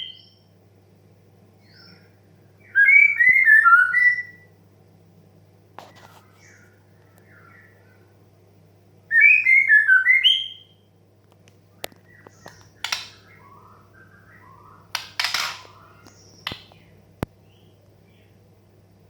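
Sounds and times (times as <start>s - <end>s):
sharp clicks: 12.5s - 13.2s, 15.0s - 16.8s
bird harsh rasping calls: 12.8s - 13.7s, 14.5s - 16.0s.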